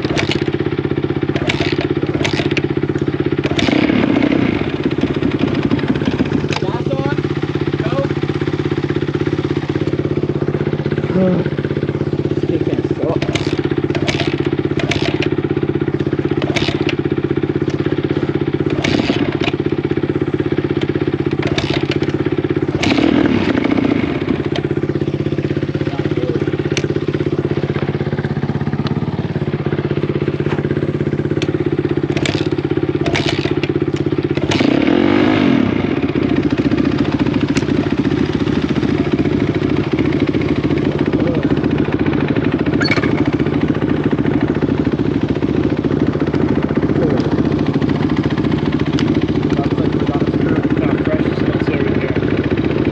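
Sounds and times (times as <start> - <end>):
sharp clicks and knocks: 0.0 - 0.6, 1.3 - 3.8, 5.0 - 6.7, 13.1 - 15.4, 16.0 - 17.0, 18.6 - 19.7, 20.8 - 22.2, 26.6 - 27.1, 31.4 - 34.9, 37.5 - 37.8
dirt bike engine revving: 0.0 - 52.9.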